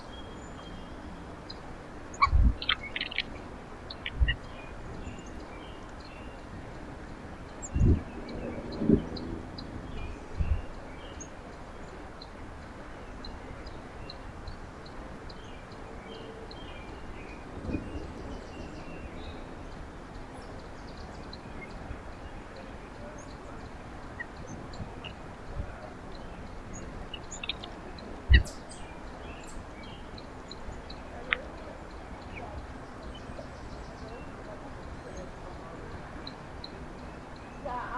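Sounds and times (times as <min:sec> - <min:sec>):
outdoor background hiss: 0:00.0 - 0:37.9
small birds chirping: 0:00.0 - 0:37.9.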